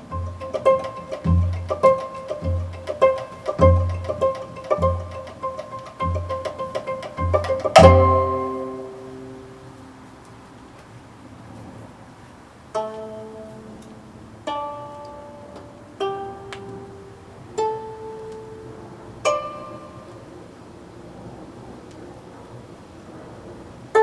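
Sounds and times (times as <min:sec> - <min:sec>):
plucked zither notes: 0:00.0 - 0:10.2, 0:12.7 - 0:20.6.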